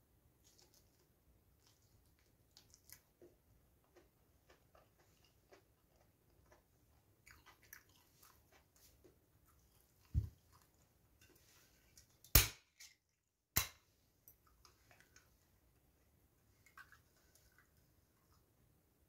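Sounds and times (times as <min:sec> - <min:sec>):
soft chewing: 0:00.3 - 0:12.3, 0:13.9 - 0:19.0.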